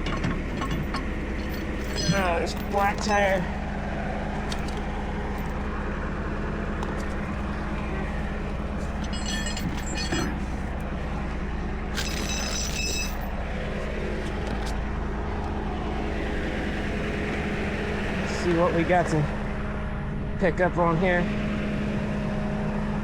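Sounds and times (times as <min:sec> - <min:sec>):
metal chains clinking and rattling: 0:00.0 - 0:03.6, 0:04.4 - 0:11.3, 0:11.9 - 0:14.8
truck engine idling: 0:00.0 - 0:23.0.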